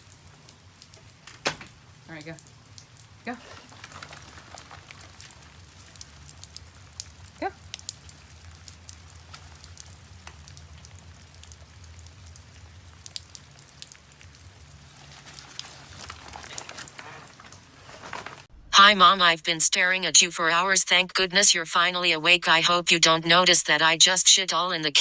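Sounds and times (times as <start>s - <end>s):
crackling clicks: 2.4s - 12.4s.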